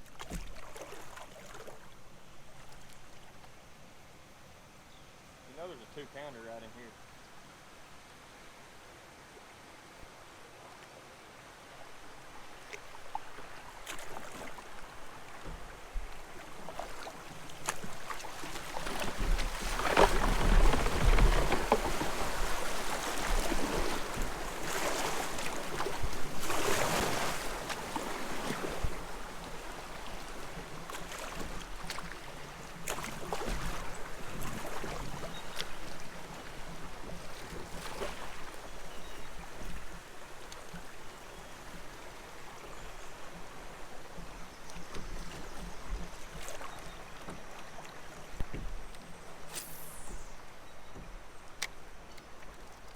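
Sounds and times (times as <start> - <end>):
water splashing around kayak: 0.0 - 3.8, 11.7 - 52.9.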